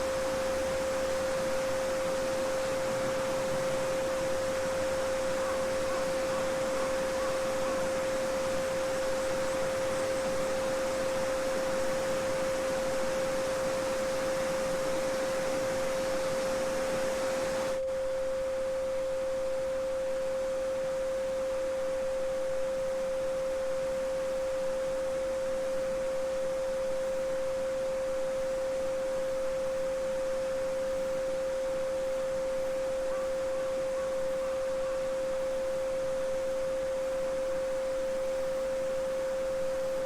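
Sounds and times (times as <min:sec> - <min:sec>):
steady sine tone: 0:00.0 - 0:40.0
babbling brook: 0:02.1 - 0:10.7.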